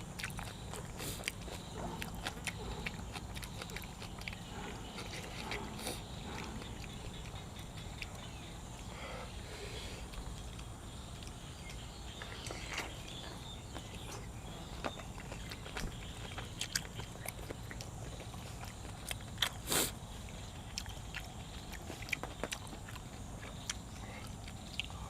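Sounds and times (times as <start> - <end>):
person chewing food: 0.0 - 25.0.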